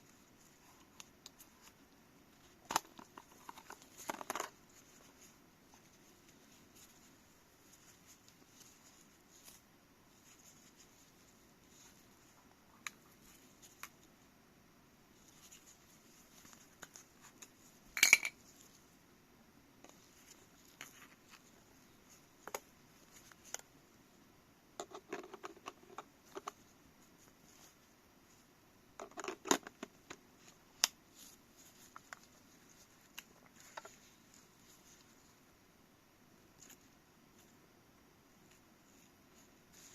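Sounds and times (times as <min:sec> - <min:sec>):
small objects clicking and tapping: 0:17.4 - 0:18.4.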